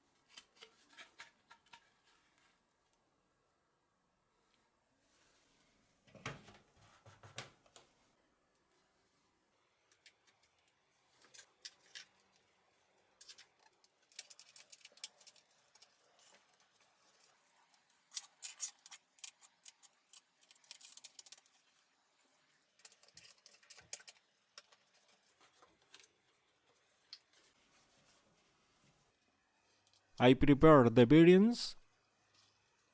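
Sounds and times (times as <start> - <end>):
rapid small clicks and ticks: 13.2 - 27.4.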